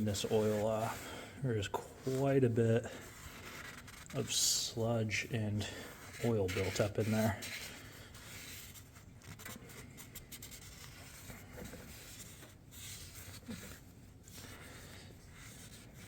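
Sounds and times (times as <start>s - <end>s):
rag rubbing and wiping: 0.0s - 16.0s.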